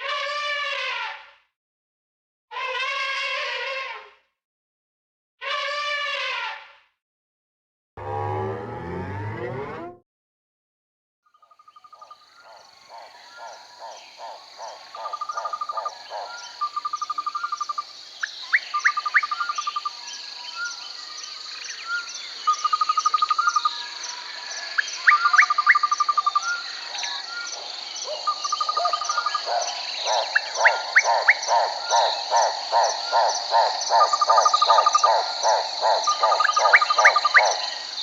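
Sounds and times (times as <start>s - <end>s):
frog chorus croaking: 11.4s - 38.0s
trilled calls and chirps: 11.4s - 38.0s
high insect drone: 11.9s - 38.0s.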